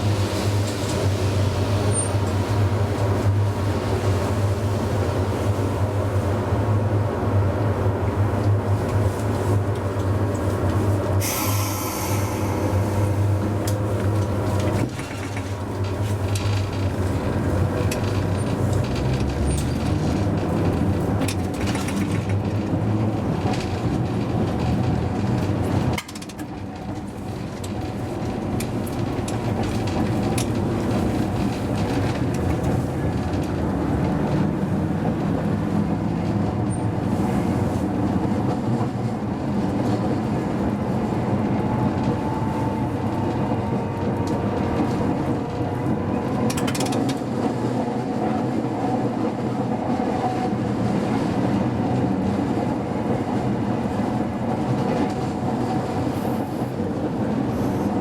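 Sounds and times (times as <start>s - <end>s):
tram motor hum and wheel rumble: 0.0s - 58.0s
air hiss: 11.2s - 13.6s.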